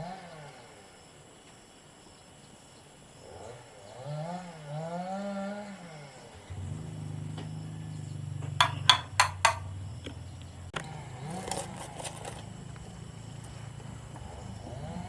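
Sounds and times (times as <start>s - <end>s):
sharp knocks: 8.6s - 9.7s
rattling clatter: 8.6s - 9.8s.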